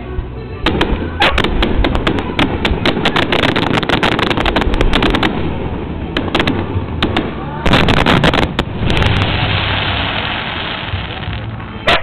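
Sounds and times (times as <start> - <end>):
fireworks bangs and cracks: 0.6 - 12.0
low rumble: 4.3 - 11.8.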